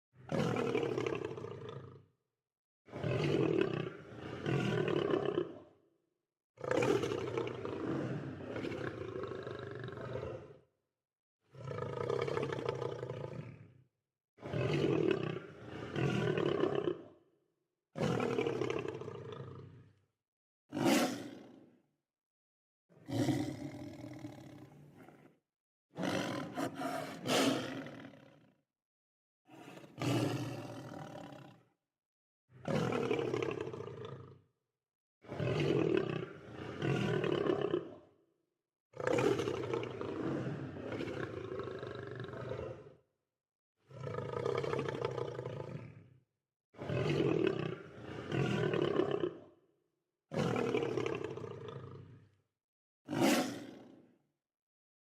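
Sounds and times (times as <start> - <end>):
lion roaring and growling: 23.1 - 25.3, 26.0 - 28.4, 53.1 - 53.6.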